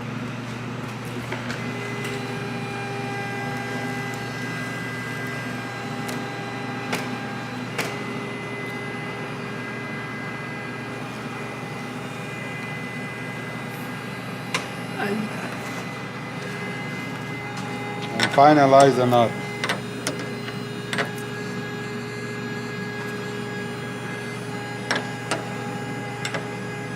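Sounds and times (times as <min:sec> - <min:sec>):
antenna motor whining: 0:00.7 - 0:26.9.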